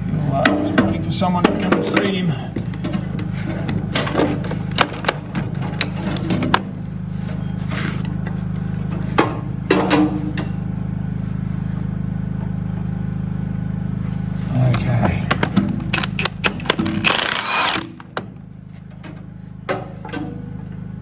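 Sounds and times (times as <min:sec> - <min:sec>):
steady low hum: 0:00.0 - 0:21.0
hand tools clinking on metal: 0:14.6 - 0:17.8.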